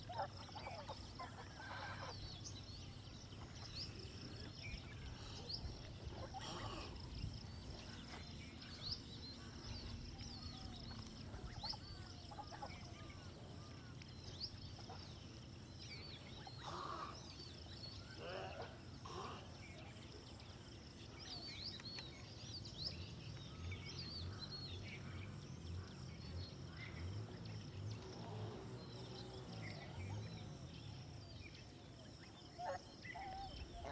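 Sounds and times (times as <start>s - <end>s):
domestic fowl calls: 6.2s - 7.0s.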